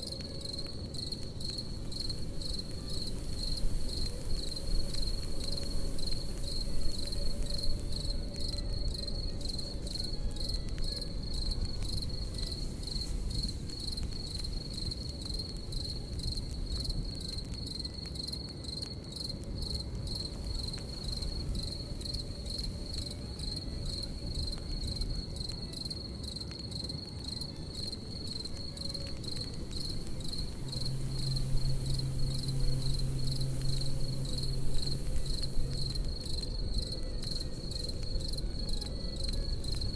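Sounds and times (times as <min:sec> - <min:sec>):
campfire crackling: 0:00.0 - 0:39.9
crickets chirping: 0:00.0 - 0:39.9
low steady hum: 0:27.1 - 0:39.9.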